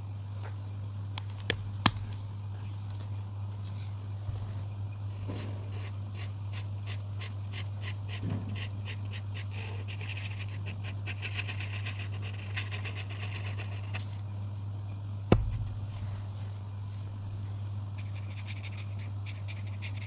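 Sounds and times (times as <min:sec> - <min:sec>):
steady low hum: 0:00.0 - 0:20.0
coloring strokes on paper: 0:05.2 - 0:14.2, 0:18.0 - 0:20.0.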